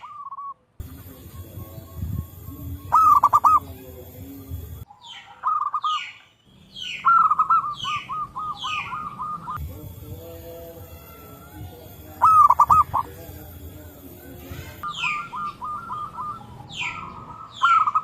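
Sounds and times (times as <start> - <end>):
doves cooing: 1.9 - 6.2, 6.9 - 9.7, 10.8 - 18.0.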